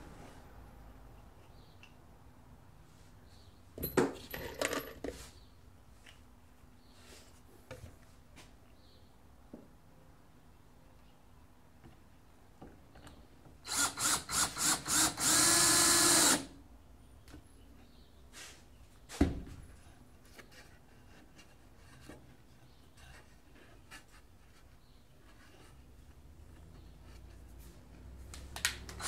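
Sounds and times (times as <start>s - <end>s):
power drill running: 13.7s - 16.5s.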